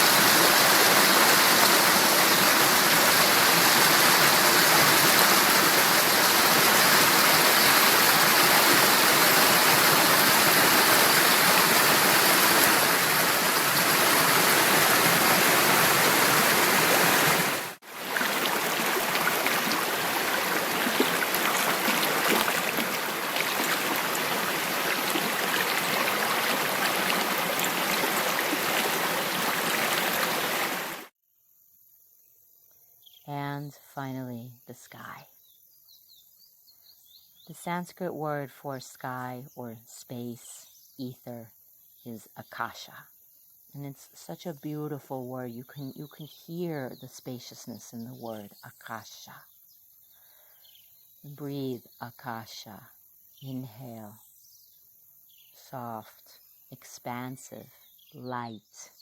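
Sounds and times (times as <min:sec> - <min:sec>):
stream water rushing: 0:00.0 - 0:31.1.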